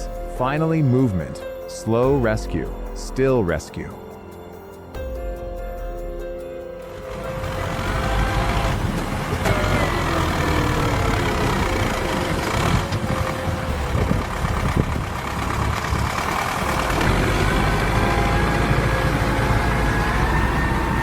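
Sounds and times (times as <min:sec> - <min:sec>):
tractor engine under load: 0:06.9 - 0:21.0.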